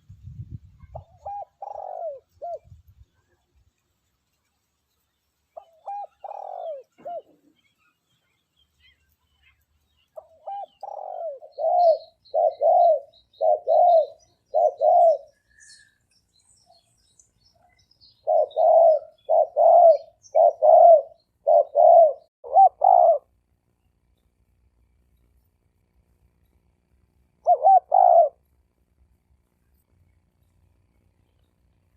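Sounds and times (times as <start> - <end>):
faint small bird chirps: 0.2 - 24.4, 29.5 - 31.9
dove cooing: 0.8 - 2.8, 5.6 - 7.6, 10.2 - 15.5, 18.2 - 23.3, 27.4 - 28.4.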